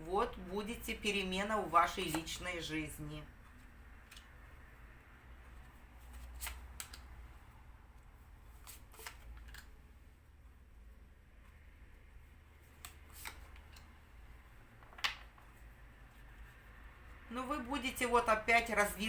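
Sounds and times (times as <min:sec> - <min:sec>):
cards clicking and snapping: 0:06.1 - 0:07.1.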